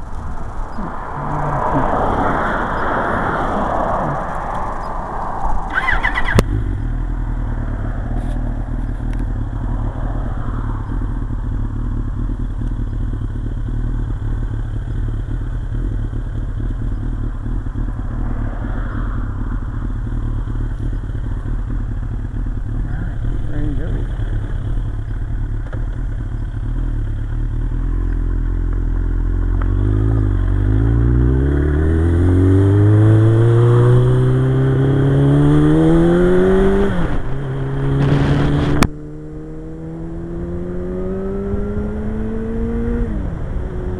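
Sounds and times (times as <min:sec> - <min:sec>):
motorcycle engine idling: 0:00.0 - 0:01.9, 0:04.0 - 0:30.9
broad rushing noise: 0:00.0 - 0:06.2.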